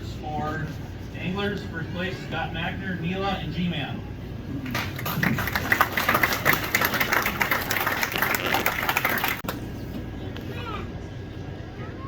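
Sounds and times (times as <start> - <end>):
crowd clapping: 4.6 - 9.6.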